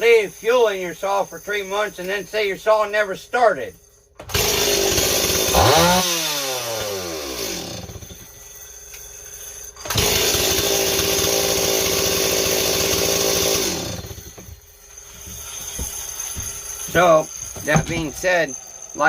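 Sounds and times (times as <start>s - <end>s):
chainsaw engine revving: 4.3s - 8.2s, 9.8s - 14.4s.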